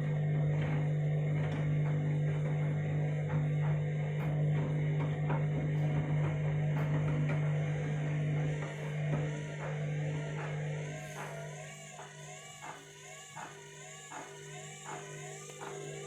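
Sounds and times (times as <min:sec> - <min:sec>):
washing machine motor humming: 0:00.0 - 0:16.0.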